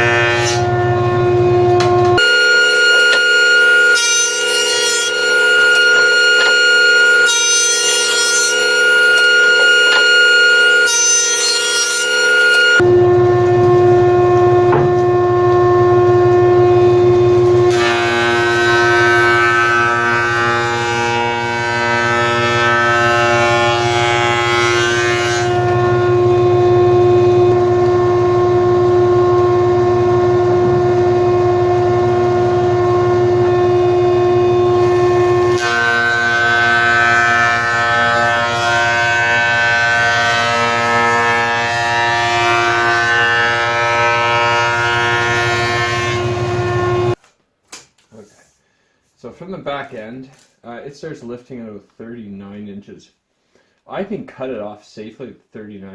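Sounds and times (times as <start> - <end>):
jointer whining: 0.0 - 40.9
board being cut on jointer: 0.0 - 47.2.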